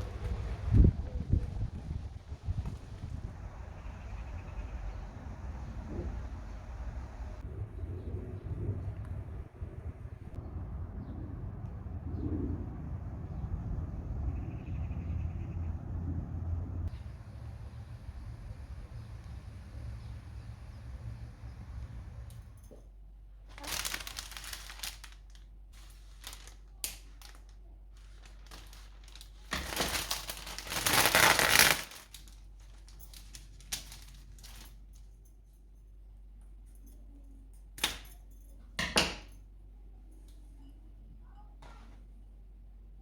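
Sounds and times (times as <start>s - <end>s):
rustling and crinkling: 21.5s - 35.9s.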